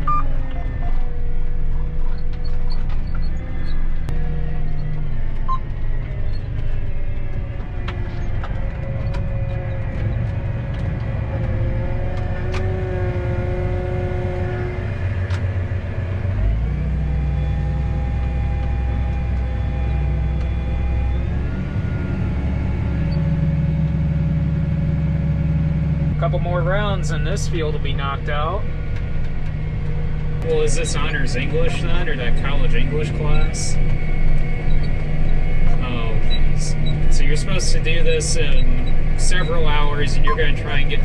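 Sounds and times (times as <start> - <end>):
combine harvester engine drone: 0.0 - 41.0
machine whines: 26.1 - 41.0.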